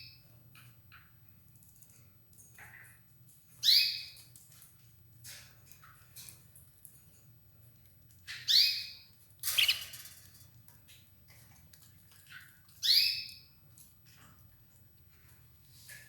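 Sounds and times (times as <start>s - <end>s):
harsh canary chirp: 3.6s - 4.1s, 8.3s - 10.0s, 12.8s - 13.5s
canary calling: 8.4s - 10.0s, 12.8s - 13.4s
faint chirps: 9.5s - 10.0s.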